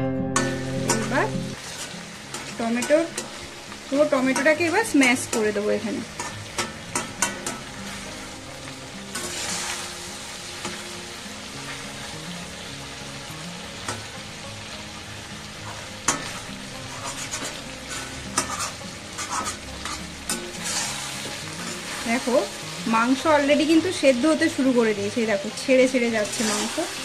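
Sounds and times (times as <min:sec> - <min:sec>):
food sizzling in oil: 0:00.3 - 0:27.0
spatula scraping and knocking on iron: 0:16.1 - 0:17.6, 0:18.4 - 0:20.9.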